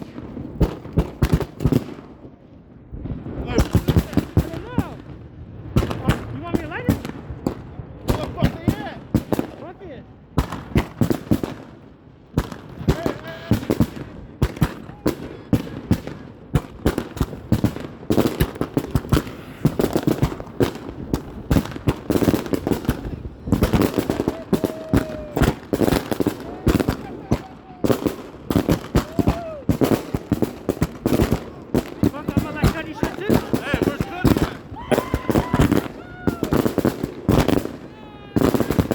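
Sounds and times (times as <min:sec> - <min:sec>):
fireworks bangs and crackling: 0:00.0 - 0:38.9
rising and falling firework tones: 0:10.4 - 0:38.9.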